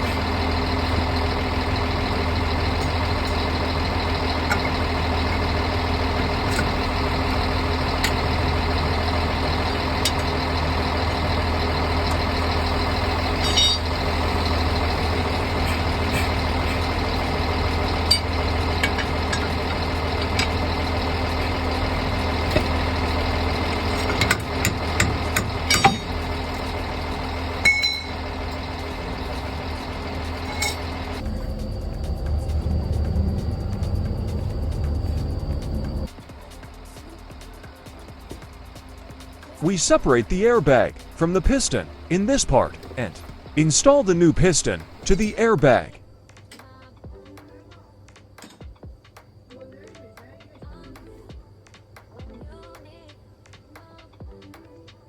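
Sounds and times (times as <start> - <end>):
large diesel engine idling: 0.0 - 46.3
sharp clicks and knocks: 23.7 - 26.8.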